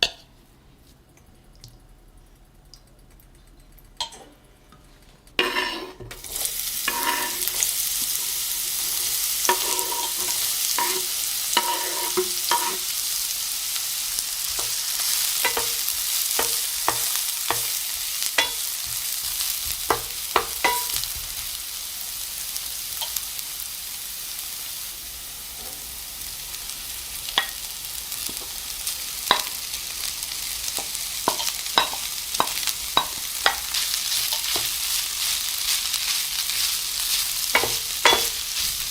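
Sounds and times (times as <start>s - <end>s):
food sizzling in hot oil: 5.4s - 38.9s
utensil clicking against pan: 18.4s - 21.2s, 30.7s - 34.9s.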